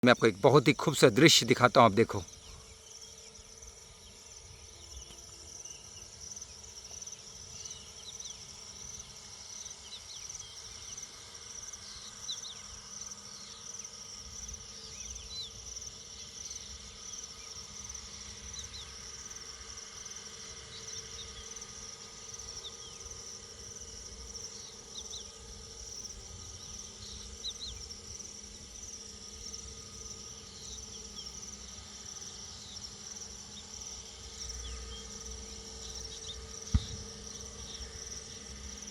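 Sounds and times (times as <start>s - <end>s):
cricket chirps: 0.0s - 38.9s
insect chorus: 0.0s - 38.9s.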